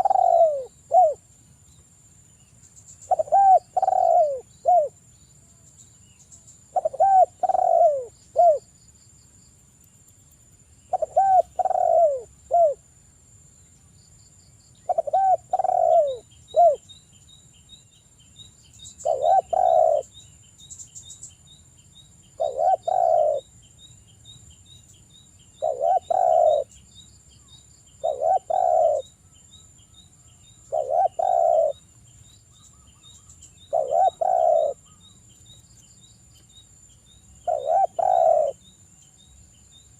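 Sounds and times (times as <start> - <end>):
dove cooing: 0.0 - 1.2, 3.1 - 5.0, 6.7 - 8.7, 10.9 - 12.8, 14.8 - 16.8, 19.0 - 20.1, 22.4 - 23.5, 25.6 - 26.7, 28.0 - 29.1, 30.7 - 31.8, 33.7 - 35.0, 37.4 - 38.6.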